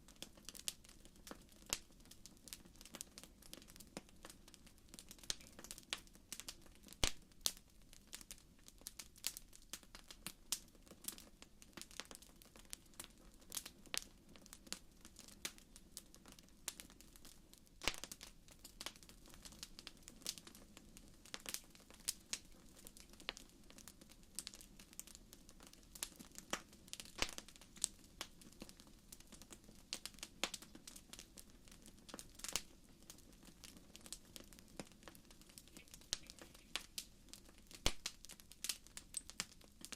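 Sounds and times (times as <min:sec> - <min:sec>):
faint low hiss: 0:00.0 - 0:39.9
wood fire crackling: 0:00.0 - 0:39.9.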